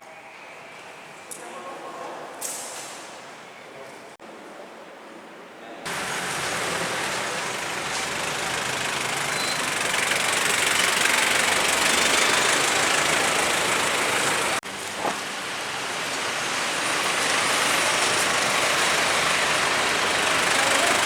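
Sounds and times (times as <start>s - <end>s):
vehicle engine running: 5.9s - 21.0s.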